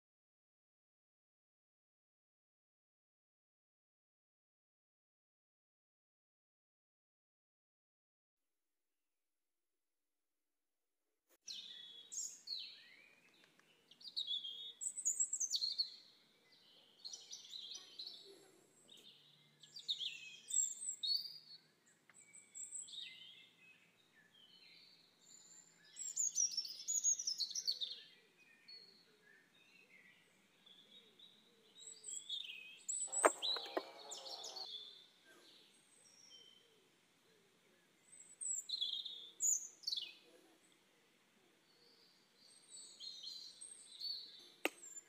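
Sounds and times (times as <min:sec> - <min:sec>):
songbirds singing: 0:11.5 - 0:45.0
sharp knock: 0:33.2 - 0:34.2.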